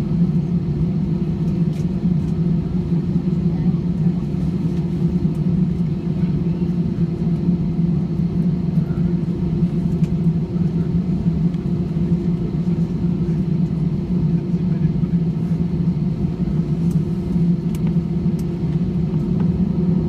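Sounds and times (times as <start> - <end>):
airliner cabin drone: 0.0 - 20.0.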